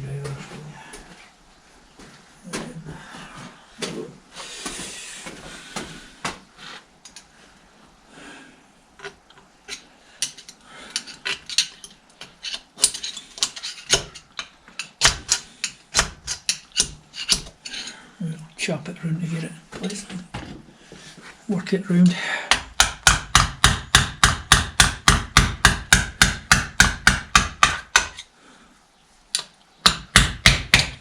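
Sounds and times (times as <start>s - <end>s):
hand tools scraping on metal: 9.0s - 18.0s.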